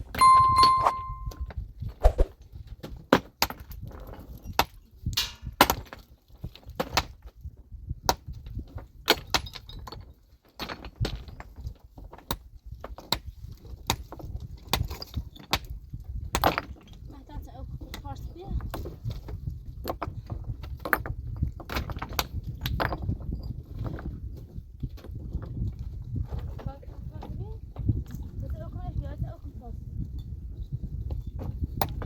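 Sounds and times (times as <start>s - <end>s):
brief metallic ring: 0.1s - 1.4s
metal tools knocking on rock: 0.1s - 1.4s.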